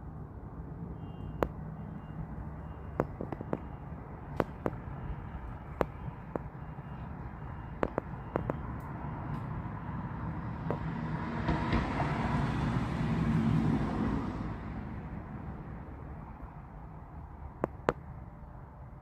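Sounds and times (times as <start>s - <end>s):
sharp clicks: 7.8s - 9.5s
vehicle passing by: 8.5s - 16.7s.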